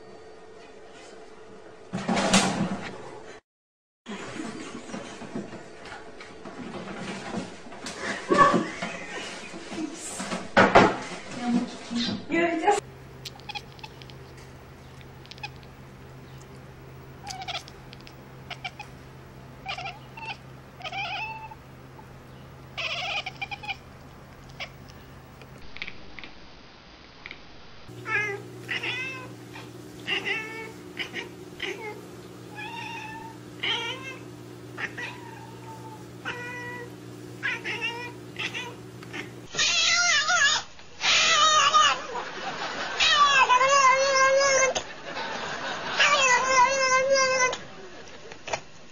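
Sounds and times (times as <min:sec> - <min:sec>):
steady low hum: 0:12.6 - 0:27.0, 0:27.6 - 0:39.6
cats meowing: 0:13.2 - 0:14.2, 0:15.0 - 0:15.7, 0:17.2 - 0:19.0, 0:19.6 - 0:21.6, 0:22.8 - 0:24.9, 0:28.0 - 0:29.4, 0:30.0 - 0:42.1, 0:43.0 - 0:44.8, 0:46.0 - 0:47.6.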